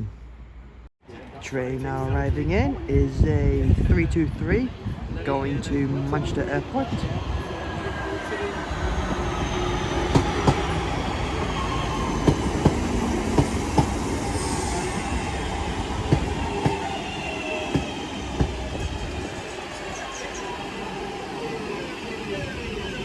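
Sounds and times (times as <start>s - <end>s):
train rumble: 1.6s - 23.0s
train motor whine: 7.0s - 23.0s
train wheels clicking over rail joints: 10.1s - 10.8s, 12.2s - 14.1s, 16.0s - 17.0s, 17.7s - 18.9s.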